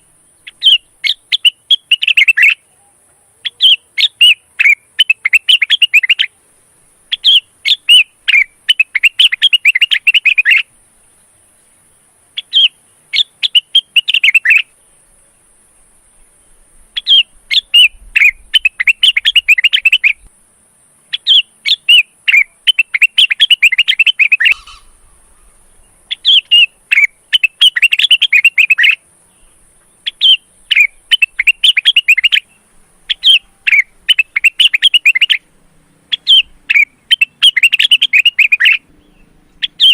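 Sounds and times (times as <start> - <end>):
bird singing chirping phrases: 0.0 - 39.9.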